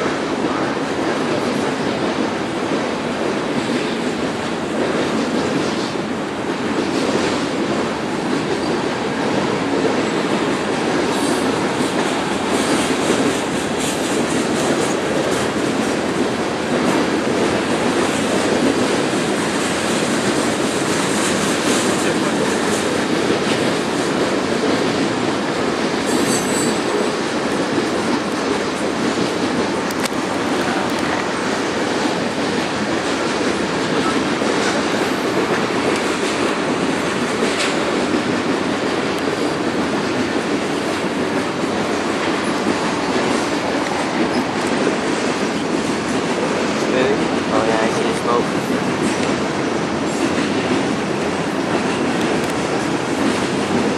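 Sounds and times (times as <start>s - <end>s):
freight train rumbling by: 0.0s - 53.9s
steel wheels squealing on rail: 26.0s - 27.2s.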